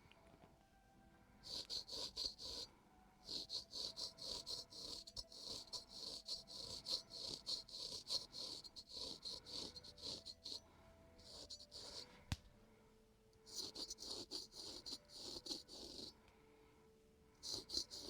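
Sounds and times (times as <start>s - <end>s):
razor scraping skin: 1.5s - 12.2s, 13.5s - 16.2s, 17.4s - 18.0s.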